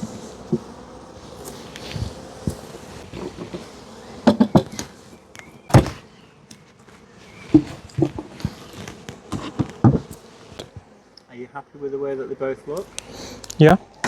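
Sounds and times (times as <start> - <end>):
wooden knocks and thuds: 4.2 - 5.0, 5.7 - 6.1, 9.3 - 10.2.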